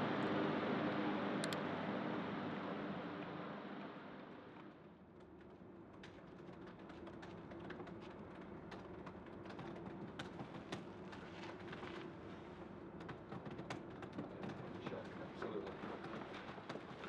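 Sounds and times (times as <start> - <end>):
computer keyboard typing: 5.9 - 11.2, 13.0 - 15.1.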